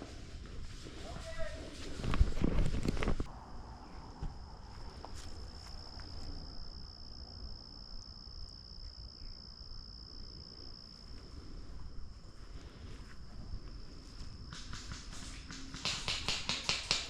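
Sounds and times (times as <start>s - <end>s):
cricket trilling: 2.4s - 15.8s.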